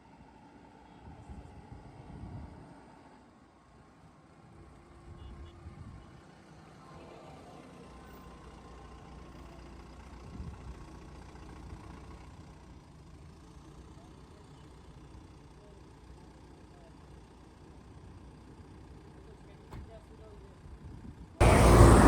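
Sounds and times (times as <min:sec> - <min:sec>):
vehicle engine idling: 0:06.3 - 0:22.0.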